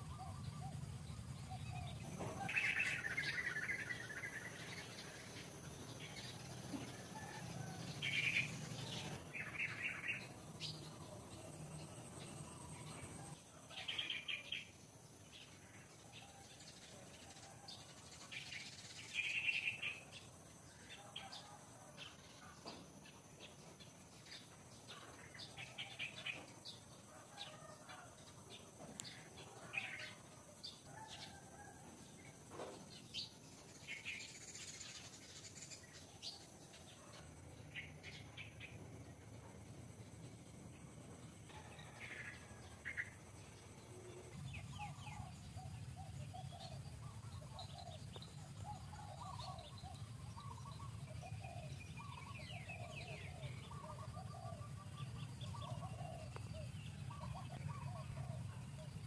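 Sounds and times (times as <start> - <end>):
small birds chirping: 0.0 - 17.4, 41.6 - 59.0.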